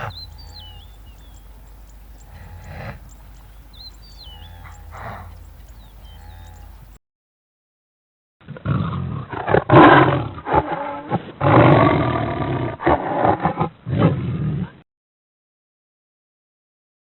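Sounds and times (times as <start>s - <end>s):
large animal roaring: 2.2s - 6.8s, 8.4s - 14.7s.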